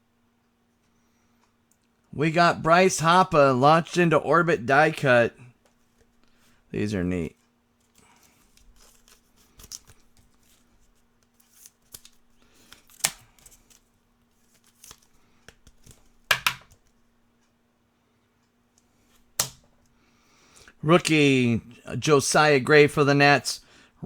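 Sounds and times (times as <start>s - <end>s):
faint steady hum: 0.0s - 24.0s
trading cards sliding and clicking: 7.8s - 16.9s
card rustle: 7.8s - 17.0s.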